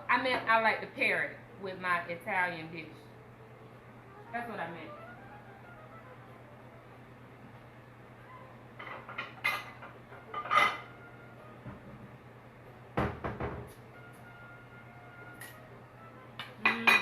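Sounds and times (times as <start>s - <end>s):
dishes and utensils clattering: 8.8s - 11.1s, 16.4s - 17.0s.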